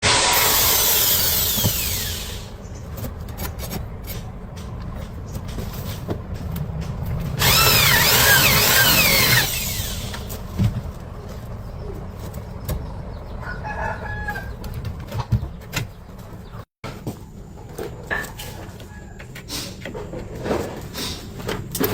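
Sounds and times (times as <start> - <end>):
power drill boring into brick: 0.0 - 2.5, 7.4 - 10.3
chicken calling: 13.1 - 14.8.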